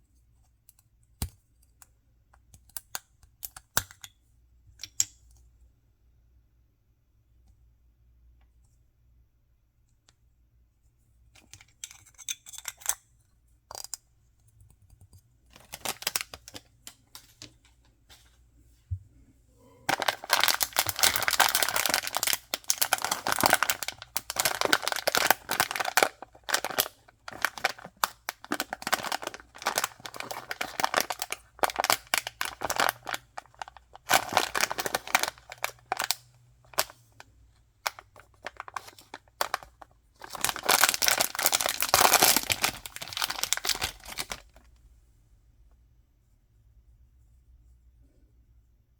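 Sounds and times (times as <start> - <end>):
packaging clicks and rustles: 15.5 - 17.5, 19.9 - 37.2, 37.8 - 44.7
wrapping crinkling and tearing: 15.6 - 16.6, 19.9 - 44.7.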